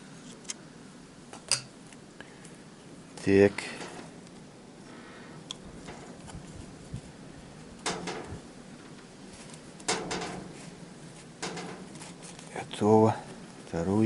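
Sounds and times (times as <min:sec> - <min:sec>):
metal parts clicking and knocking: 0:11.4 - 0:12.1.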